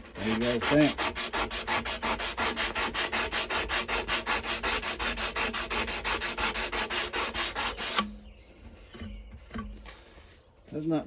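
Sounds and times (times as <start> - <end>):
sandpaper strokes on knife blade: 0.2 - 8.1.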